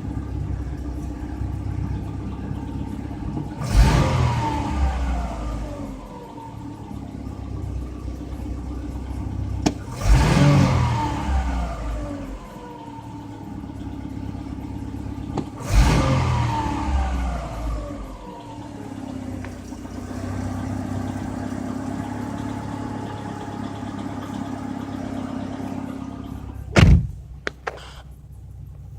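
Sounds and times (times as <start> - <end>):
car engine revving and idling: 0.0 - 28.9
loud thump: 26.7 - 27.2.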